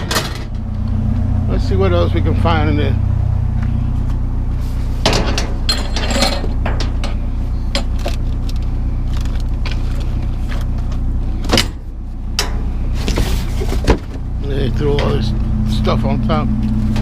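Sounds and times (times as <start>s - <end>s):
vehicle engine idling: 0.0s - 17.0s
metal and glass clinking: 5.1s - 7.2s.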